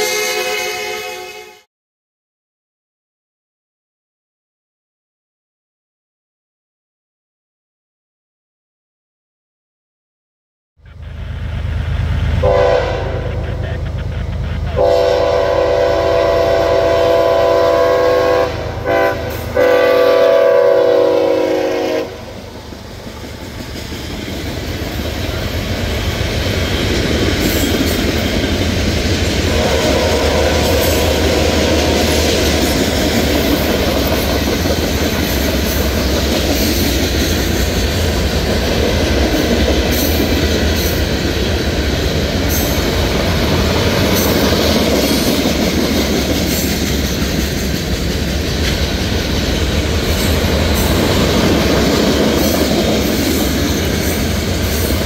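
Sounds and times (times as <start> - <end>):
locomotive air horn: 0.0 - 1.7, 12.4 - 13.6, 14.7 - 22.4, 29.5 - 31.7
diesel locomotive running: 10.8 - 55.0
wheels clattering on rails: 22.4 - 55.0.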